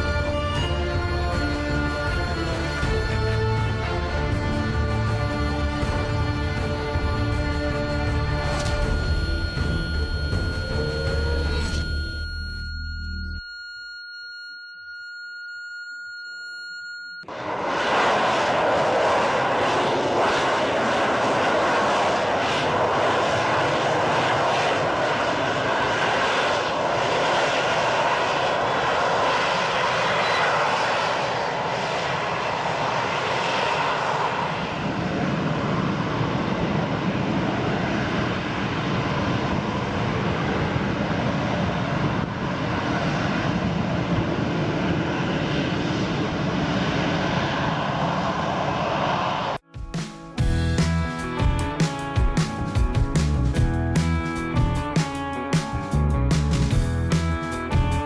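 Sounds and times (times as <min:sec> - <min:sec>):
loud aircraft engine noise: 0:00.0 - 0:12.4, 0:17.3 - 0:49.6
steady electronic tone: 0:07.0 - 0:18.6.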